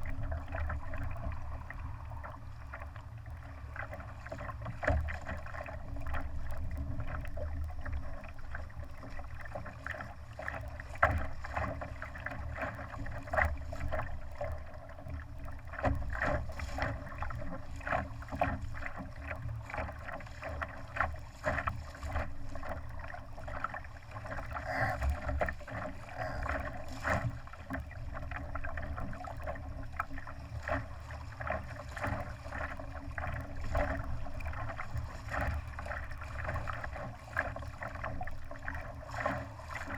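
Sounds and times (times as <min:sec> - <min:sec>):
low rumble: 0:00.0 - 0:04.8, 0:24.1 - 0:27.2
water splashing against hull: 0:00.0 - 0:39.9.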